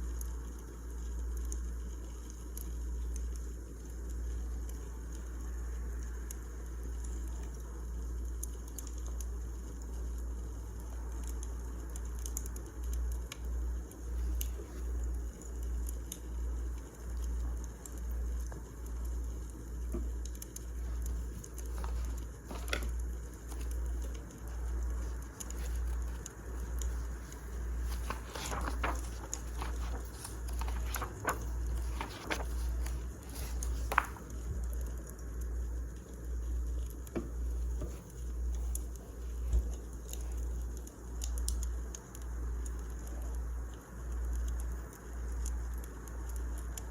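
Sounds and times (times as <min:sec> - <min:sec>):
wood fire crackling: 0:11.2 - 0:46.9.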